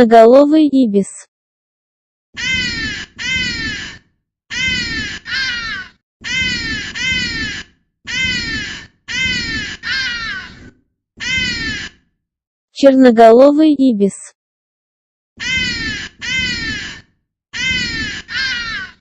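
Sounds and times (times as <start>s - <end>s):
ibis harsh calls: 2.4s - 12.0s, 15.4s - 19.0s.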